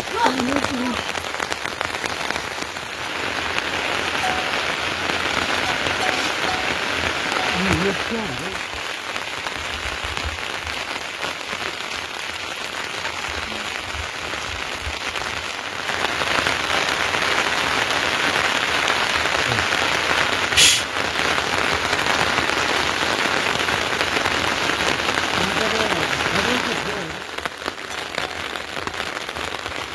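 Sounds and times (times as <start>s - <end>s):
steady rain falling: 0.0s - 29.9s
brief sharp hiss: 20.5s - 21.0s.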